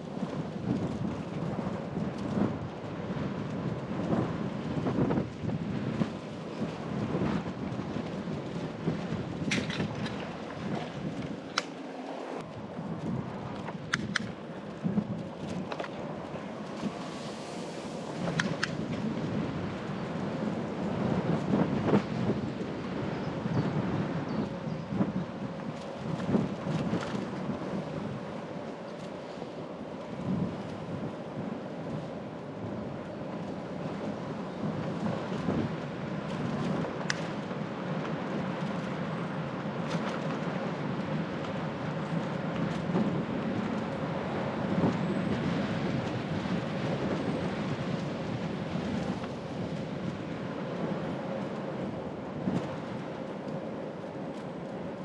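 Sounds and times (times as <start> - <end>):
bicycle rattling: 0.0 - 17.0
bicycle tyres rolling: 0.0 - 55.0.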